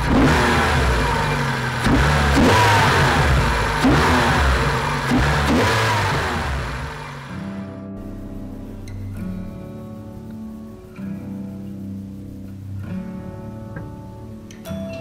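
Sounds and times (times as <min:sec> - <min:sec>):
car engine idling and revving: 0:00.0 - 0:10.7.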